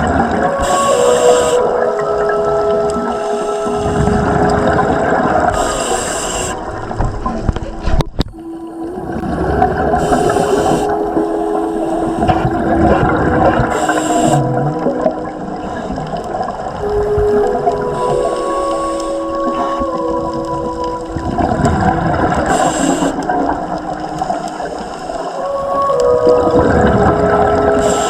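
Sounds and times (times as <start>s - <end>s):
exhalation bubbles rumbling: 0.0s - 28.0s
regulator inhalation hisses: 0.5s - 1.8s, 3.1s - 4.4s, 5.4s - 6.7s, 9.9s - 12.6s, 13.6s - 14.6s, 18.0s - 19.8s, 22.4s - 23.4s, 24.2s - 25.6s, 27.7s - 28.0s.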